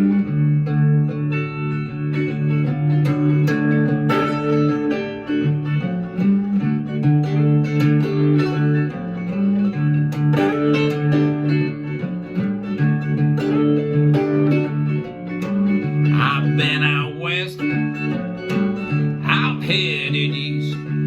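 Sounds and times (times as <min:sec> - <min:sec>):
blues guitar: 0:00.0 - 0:21.0
person singing: 0:16.1 - 0:17.9, 0:19.1 - 0:21.0.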